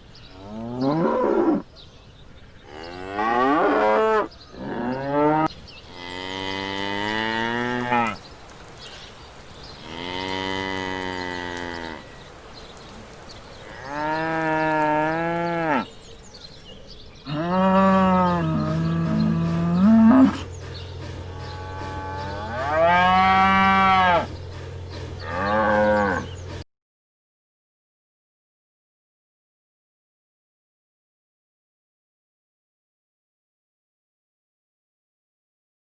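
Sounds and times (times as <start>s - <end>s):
cattle mooing: 2.7s - 8.2s, 9.8s - 12.2s, 13.6s - 16.0s, 17.3s - 20.5s, 21.3s - 24.4s, 25.2s - 26.4s.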